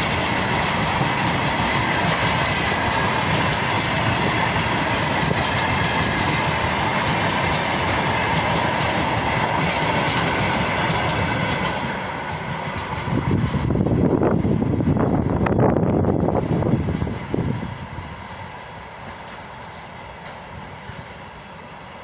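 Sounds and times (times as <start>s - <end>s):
wheels clacking over rail joints: 0.0s - 14.1s
freight train rolling past: 0.0s - 22.0s.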